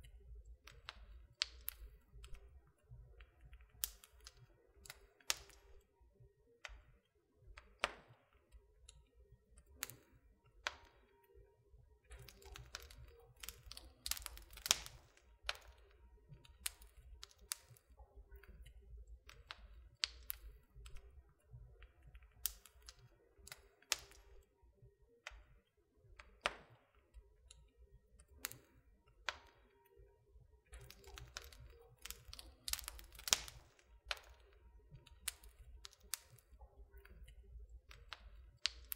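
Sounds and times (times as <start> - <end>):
wood fire crackling: 0.0 - 5.8, 9.6 - 10.9, 12.0 - 24.4, 28.2 - 29.5, 30.7 - 38.9.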